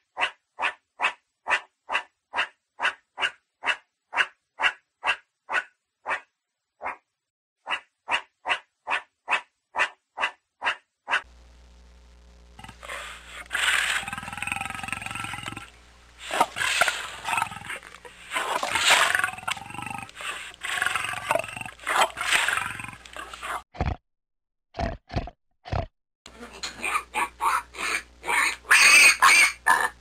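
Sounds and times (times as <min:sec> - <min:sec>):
lion roaring and growling: 0:12.6 - 0:24.0
wild boar grunting: 0:12.6 - 0:24.0.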